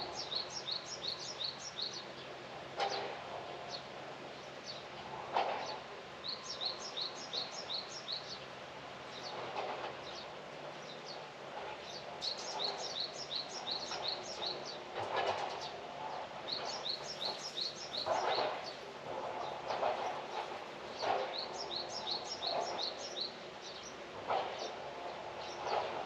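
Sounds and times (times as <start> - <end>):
outdoor background noise: 0.0 - 26.0
songbird chirping: 11.9 - 14.8, 16.5 - 24.0.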